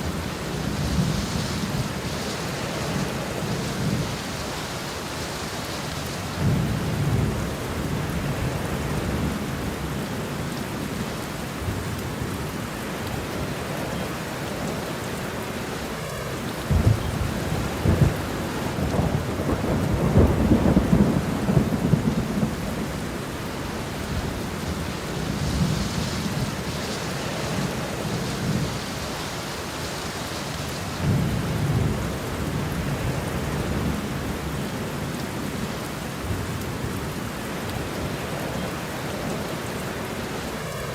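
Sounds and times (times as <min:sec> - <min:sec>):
steady rain: 0:00.0 - 0:40.9
thunder rumbling: 0:15.9 - 0:34.9
sharp thunder cracks: 0:16.7 - 0:22.6.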